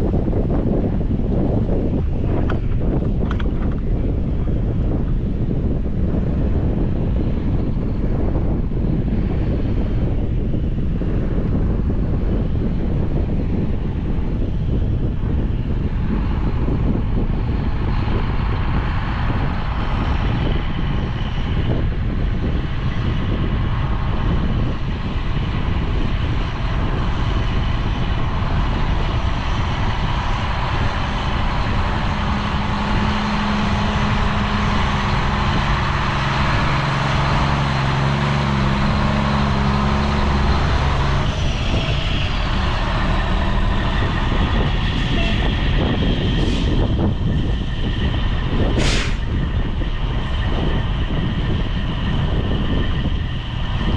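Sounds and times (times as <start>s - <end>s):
deep engine hum: 0.0s - 53.9s
farm machinery running: 13.2s - 53.9s.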